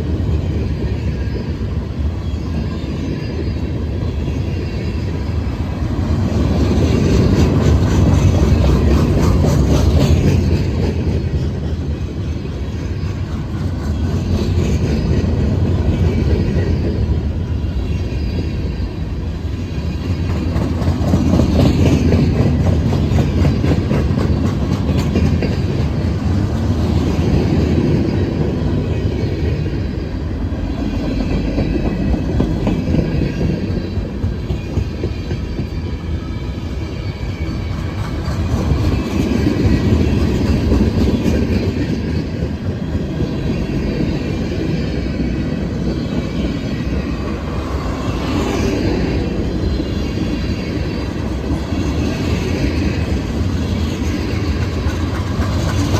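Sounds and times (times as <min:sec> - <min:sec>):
freight train cars rolling past: 0:00.0 - 0:55.9
steel wheels clicking over rail joints: 0:06.5 - 0:12.0, 0:20.0 - 0:27.6, 0:51.3 - 0:55.9.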